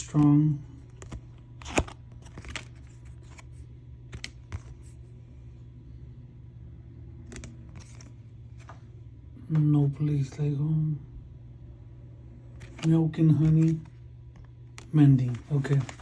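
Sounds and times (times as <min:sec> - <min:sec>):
steady low hum: 0:00.0 - 0:16.0
cards clicking and tapping: 0:00.9 - 0:05.0, 0:07.3 - 0:08.8, 0:12.6 - 0:16.0.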